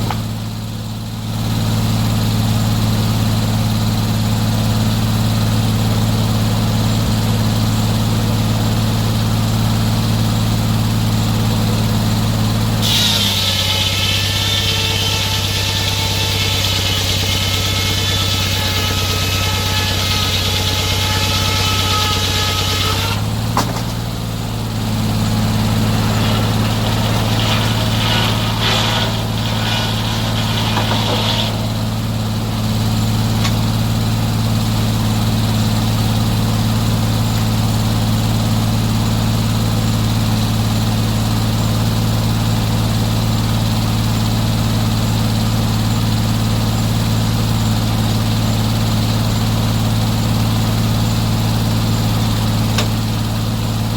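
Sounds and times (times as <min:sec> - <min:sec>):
sawmill engine running: 0:00.0 - 0:53.9
hissing: 0:25.3 - 0:33.6.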